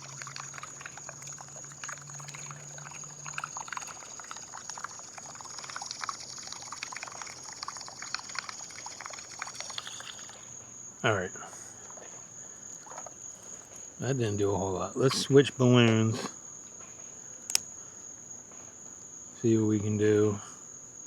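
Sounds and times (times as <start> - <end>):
small water splashes: 0.0 - 10.6, 11.5 - 13.7
pool water trickling and lapping: 0.0 - 16.0.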